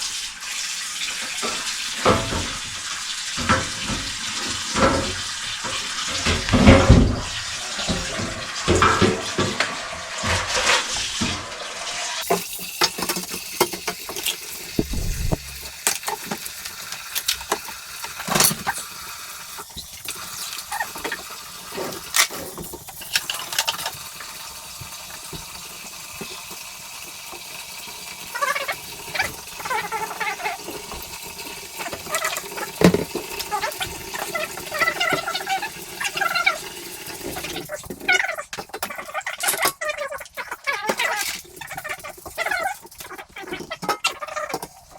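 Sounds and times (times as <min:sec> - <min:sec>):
tap running into sink: 0:01.1 - 0:11.6, 0:12.2 - 0:27.6, 0:28.3 - 0:39.6
dishes and pots knocking: 0:01.4 - 0:02.7, 0:03.4 - 0:10.5.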